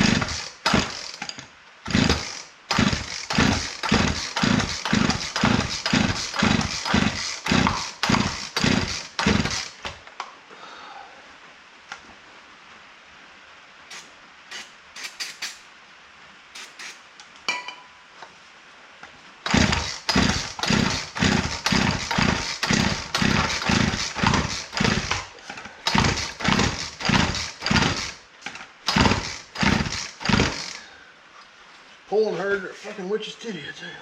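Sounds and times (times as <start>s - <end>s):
chainsaw recoil starter pulls: 0.0s - 10.0s, 19.4s - 30.9s
two-stroke engine turning over: 0.0s - 10.0s, 19.4s - 28.2s, 28.8s - 30.8s.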